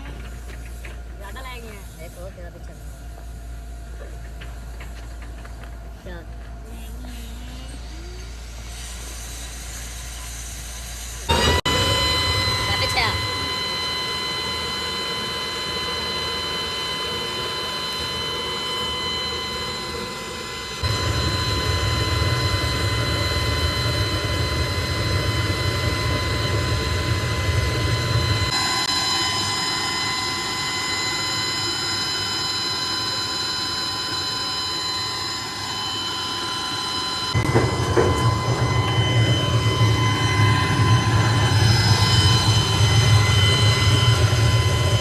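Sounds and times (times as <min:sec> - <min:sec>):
factory machinery whining: 0:00.0 - 0:45.0
loud low hum: 0:11.2 - 0:45.0.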